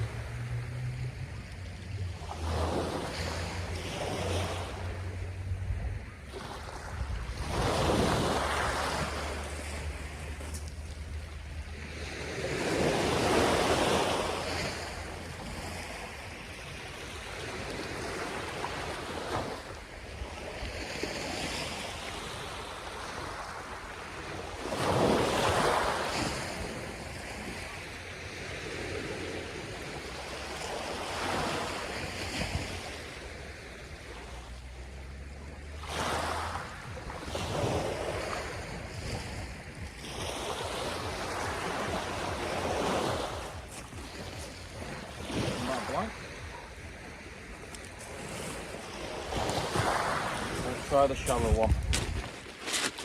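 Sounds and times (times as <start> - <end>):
wind rumbling on microphone: 0.0 - 19.0, 31.7 - 52.9
sea waves breaking on beach: 0.0 - 53.0.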